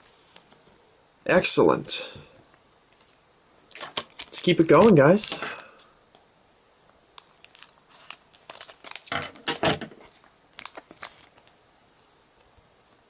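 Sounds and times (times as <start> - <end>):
foil pack tearing and crinkling: 3.7 - 5.3, 7.2 - 11.5.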